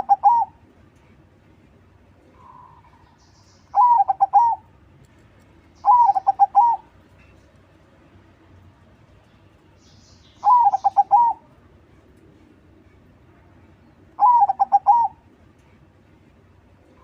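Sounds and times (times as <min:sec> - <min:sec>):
dove cooing: 0:00.0 - 0:00.6, 0:03.7 - 0:04.7, 0:05.8 - 0:06.9, 0:10.4 - 0:11.4, 0:14.2 - 0:15.2.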